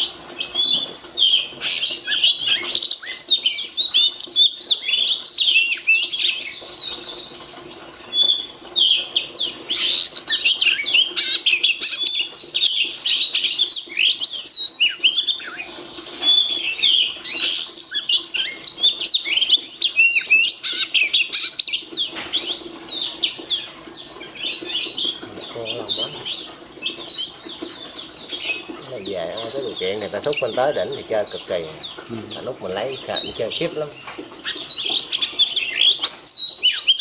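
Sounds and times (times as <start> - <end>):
bird singing whistled notes: 0.0 - 7.5, 8.1 - 37.0.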